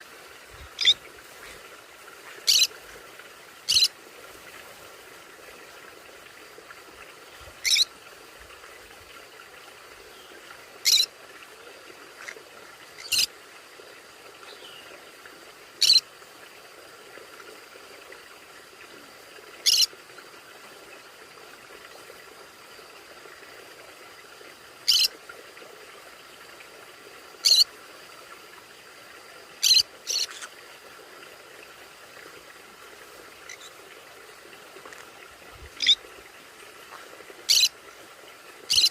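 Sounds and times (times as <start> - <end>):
faint steady hiss: 0.0 - 38.9
parrot high-pitched calls: 0.8 - 1.0, 2.5 - 2.7, 3.7 - 3.9, 7.6 - 7.8, 10.8 - 11.1, 15.8 - 16.0, 19.6 - 19.9, 27.4 - 27.6, 29.6 - 30.5, 37.5 - 37.7, 38.7 - 38.9.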